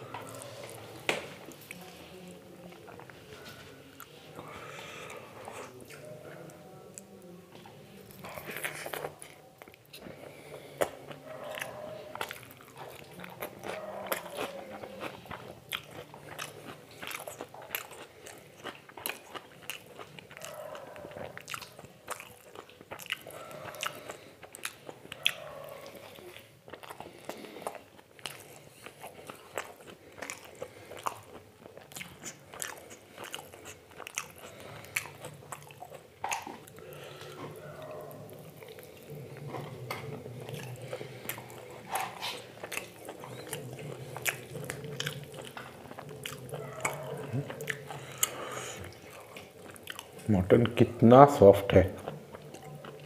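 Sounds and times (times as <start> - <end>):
person biting and chewing crunchy food: 8.3 - 50.4.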